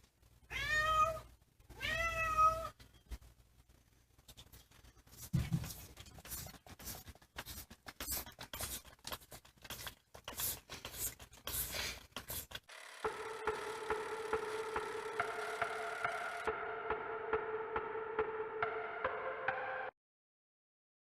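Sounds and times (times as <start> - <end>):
held tones: 12.7 - 16.5.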